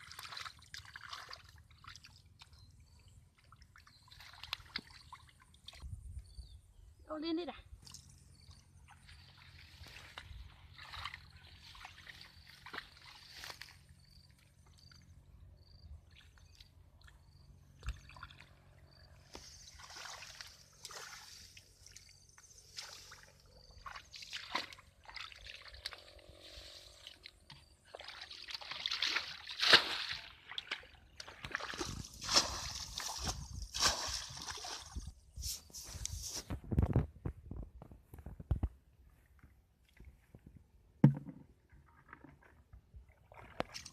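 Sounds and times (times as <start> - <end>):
water sloshing and splashing: 0.0 - 6.0, 7.8 - 14.4, 16.0 - 35.2, 41.8 - 43.9.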